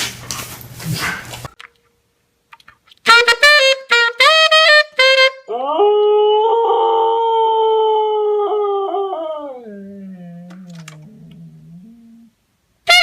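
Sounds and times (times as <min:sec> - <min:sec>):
husky howling: 0:05.5 - 0:12.3.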